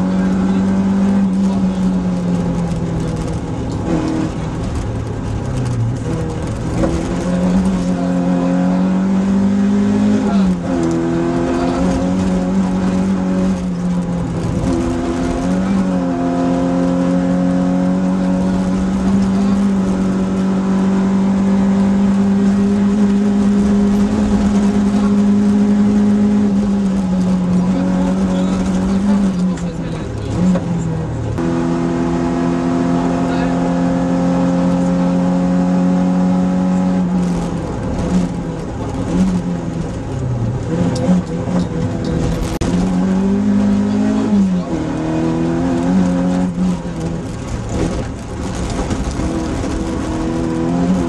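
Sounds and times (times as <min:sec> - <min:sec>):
rally car engine at high revs: 0:00.0 - 0:51.0.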